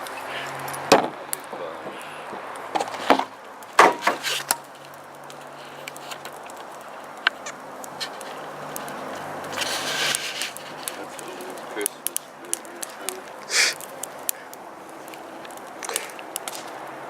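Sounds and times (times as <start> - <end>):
sharp knocks and clatters: 0.8 - 4.6.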